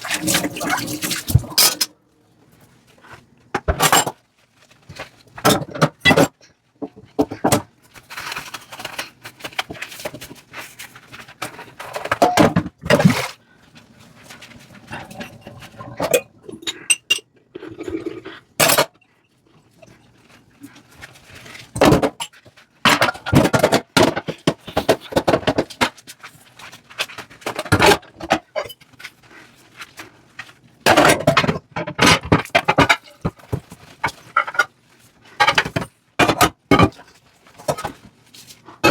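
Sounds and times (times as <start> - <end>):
scrubbing and rinsing: 0.0 - 3.5, 12.8 - 16.4, 19.5 - 22.8
dishes clinking in a sink: 15.0 - 17.4.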